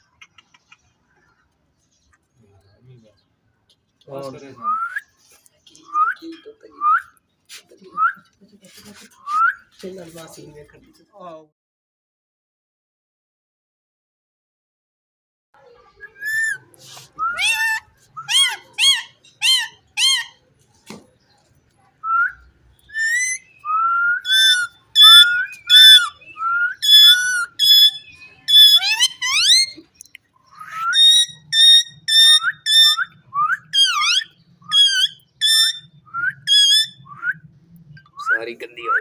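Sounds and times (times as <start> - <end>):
parrot whistling: 17.2 - 20.4, 22.1 - 29.8, 30.5 - 37.4.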